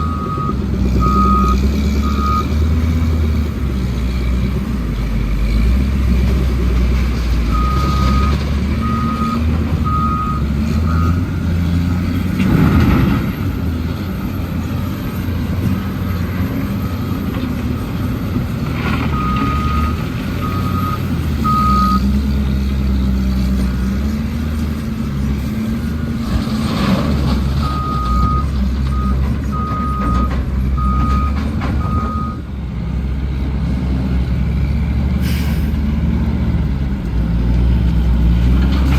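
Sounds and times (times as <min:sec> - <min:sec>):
reversing alarm beeps: 0:00.0 - 0:02.5, 0:07.5 - 0:11.2, 0:19.1 - 0:22.0, 0:27.6 - 0:32.4
diesel truck engine running: 0:00.0 - 0:38.9.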